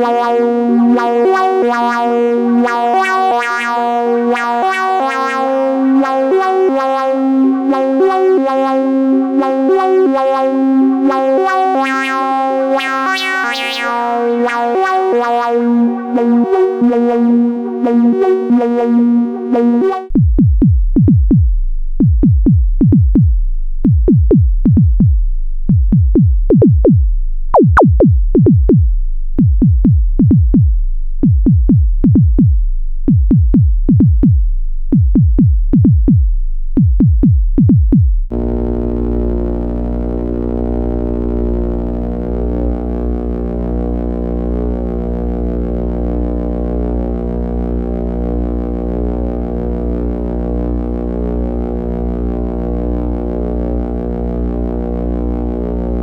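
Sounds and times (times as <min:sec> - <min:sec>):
synthesizer chords: 0:01.2 - 0:20.2, 0:27.6 - 0:28.6, 0:38.3 - 0:56.0
synthesized kick drum hits: 0:20.1 - 0:44.0.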